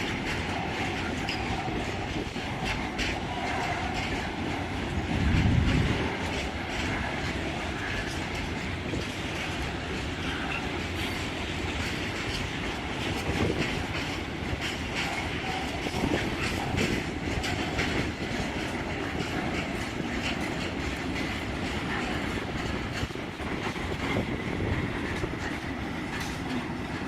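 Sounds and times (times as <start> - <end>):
train wheels clattering over rail joints: 0.0 - 27.0.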